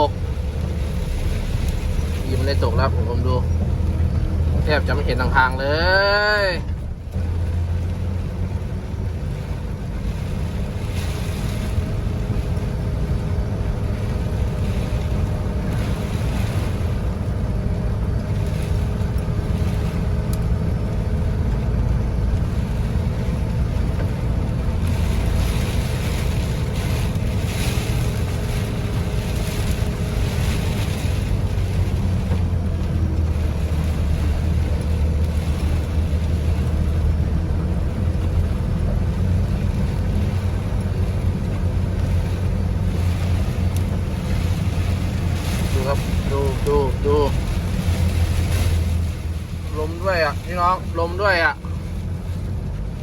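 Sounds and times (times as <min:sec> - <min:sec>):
heavy rain: 0:00.0 - 0:53.0
vehicle engine hum: 0:00.0 - 0:53.0
wind gusts: 0:00.0 - 0:53.0.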